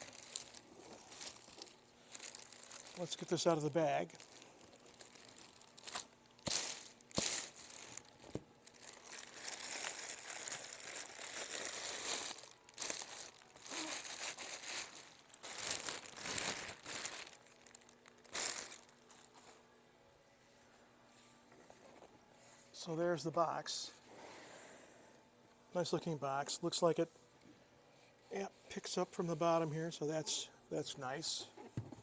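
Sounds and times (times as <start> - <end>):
plastic bag crinkling: 0.0 - 19.5.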